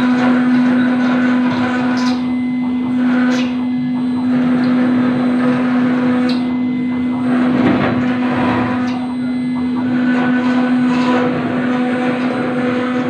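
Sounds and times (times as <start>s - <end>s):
router spindle motor hum: 0.0s - 13.0s
bit grinding stone: 7.2s - 13.0s.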